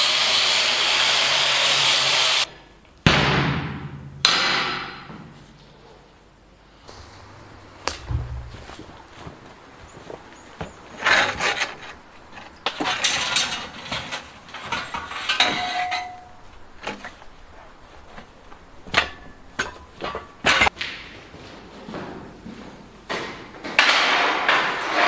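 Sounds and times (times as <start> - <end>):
steel piece ringing: 0.0 - 2.5, 14.6 - 16.9
sharp metal knocks: 3.1 - 5.2
steel scraping on workbench: 10.9 - 18.3.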